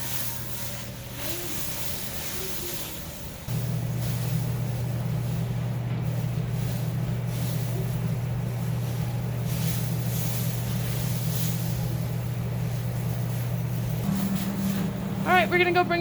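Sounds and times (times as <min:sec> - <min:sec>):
diesel engine droning: 0:03.4 - 0:16.0.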